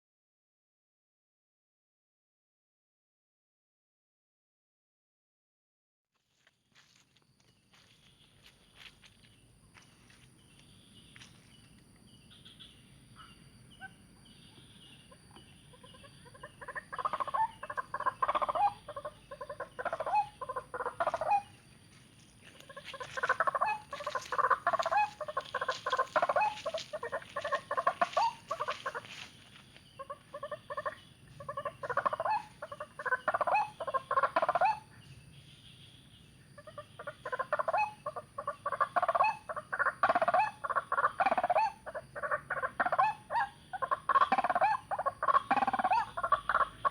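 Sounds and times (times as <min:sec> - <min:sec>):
waterhen calling: 0:15.1 - 0:21.6, 0:22.5 - 0:35.0, 0:36.6 - 0:46.9.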